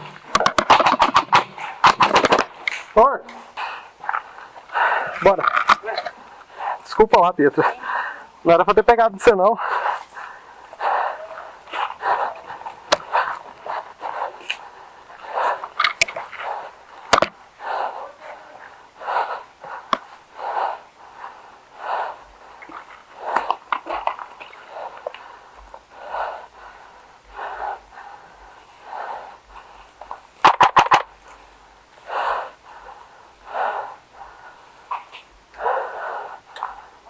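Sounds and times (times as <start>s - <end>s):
airsoft gun firing: 0.0s - 2.8s
heavy breathing: 0.0s - 37.0s.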